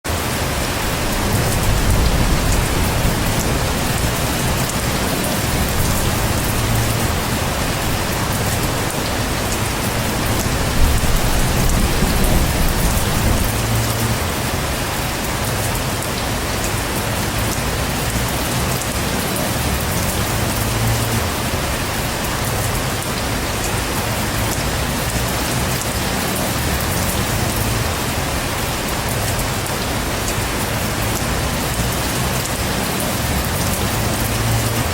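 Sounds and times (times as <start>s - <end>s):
heavy rain pouring: 0.0s - 34.9s
thunder rumbling: 0.4s - 14.3s.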